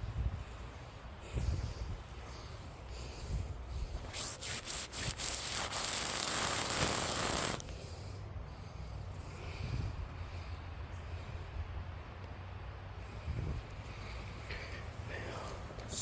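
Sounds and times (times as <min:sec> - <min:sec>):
rubbing scraping noise: 0:04.0 - 0:07.6.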